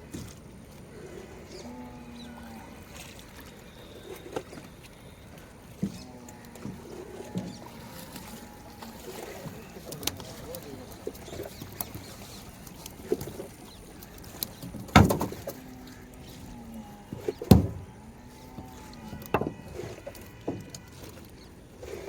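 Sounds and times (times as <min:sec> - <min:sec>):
faint water and boat sounds: 0:00.0 - 0:22.0
heavy thumps: 0:14.9 - 0:15.4, 0:17.5 - 0:17.9.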